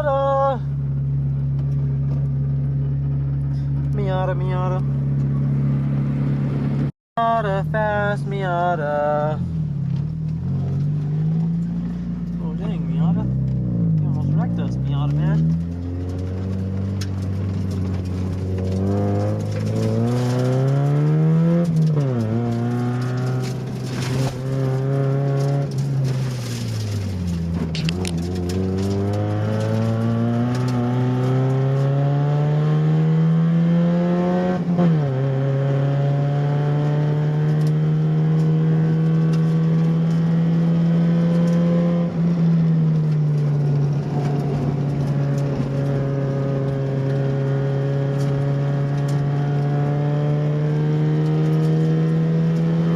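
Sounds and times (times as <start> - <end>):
car engine revving hard: 12.6 - 52.9.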